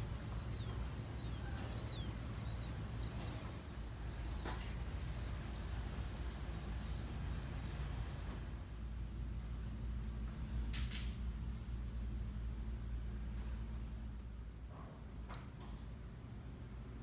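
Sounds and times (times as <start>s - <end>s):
birds chirping: 0.0s - 8.5s
low outdoor rumble: 0.0s - 17.0s.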